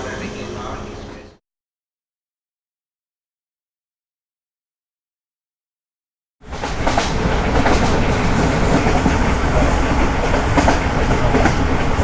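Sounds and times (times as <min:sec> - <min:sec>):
train carriage rumbling on rails: 0:00.0 - 0:01.4, 0:06.4 - 0:12.0
wheels clicking over rail joints: 0:06.5 - 0:12.0.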